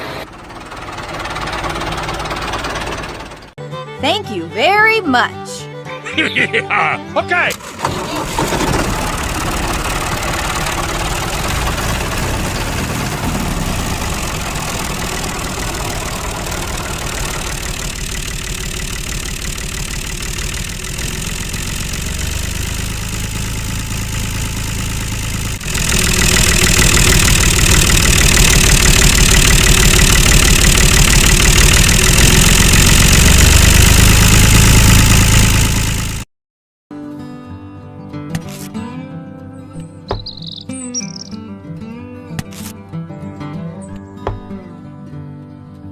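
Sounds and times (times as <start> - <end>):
engine running: 0.0 - 3.6, 7.4 - 36.3, 40.1 - 41.4.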